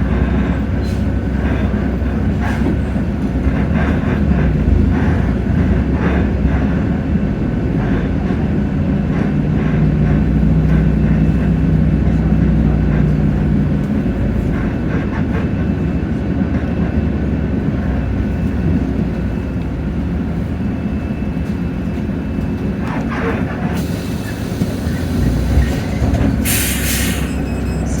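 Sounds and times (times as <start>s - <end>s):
bus diesel engine drone: 0.0s - 28.0s
air hissing: 23.8s - 27.6s.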